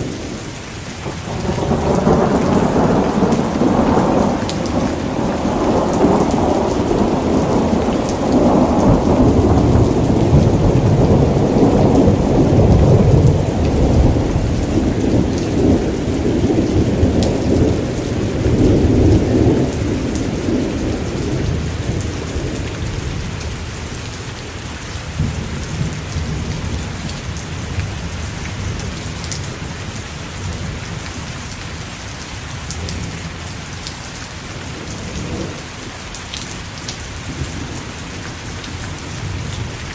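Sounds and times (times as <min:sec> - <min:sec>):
steady rain: 0:00.0 - 0:39.9
thunder rolling: 0:01.0 - 0:23.3.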